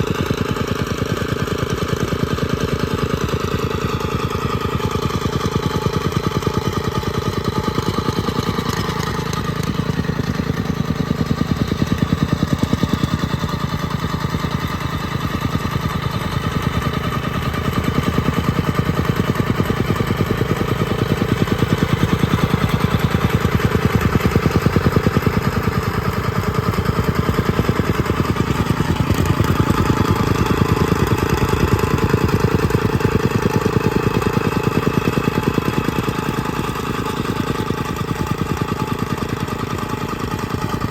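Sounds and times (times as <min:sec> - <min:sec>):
small engine pulsing: 0:00.0 - 0:40.9.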